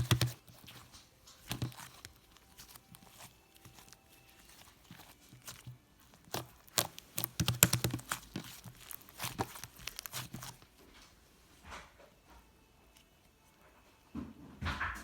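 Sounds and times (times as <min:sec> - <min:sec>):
slime crackling and popping: 0:00.0 - 0:10.8.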